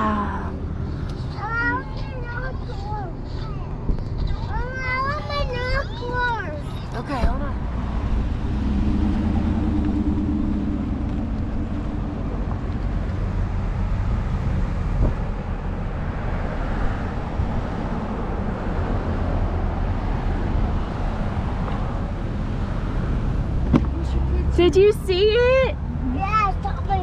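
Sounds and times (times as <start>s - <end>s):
car cabin rumble: 3.7s - 16.3s.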